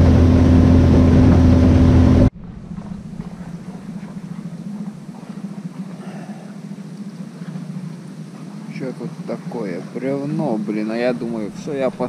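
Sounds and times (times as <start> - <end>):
boat motor running: 0.0 - 12.0
rushing wind and water: 0.0 - 12.0.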